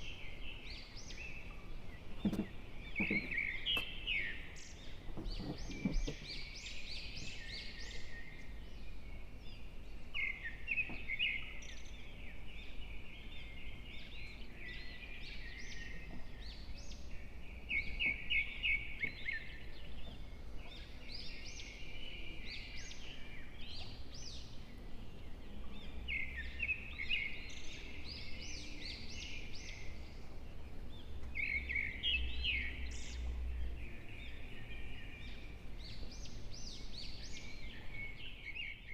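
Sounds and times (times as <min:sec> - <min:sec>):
small birds chirping and singing: 0:00.0 - 0:38.9.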